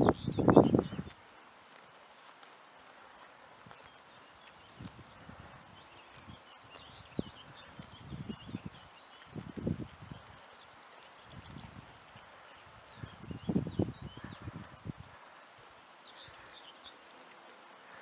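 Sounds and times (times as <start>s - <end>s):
wind buffeting microphone: 0.0s - 1.2s, 4.6s - 10.4s, 11.2s - 12.2s, 12.8s - 15.2s
crickets trilling: 0.0s - 18.0s.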